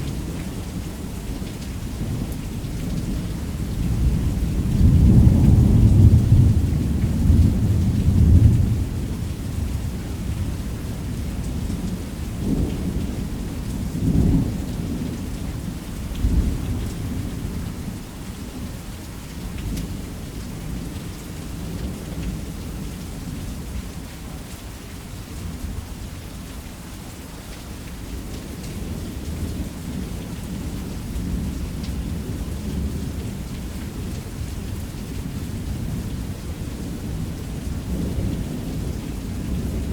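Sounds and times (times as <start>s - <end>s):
heavy rain drumming on a roof: 0.0s - 39.9s
rolling thunder: 3.0s - 9.2s.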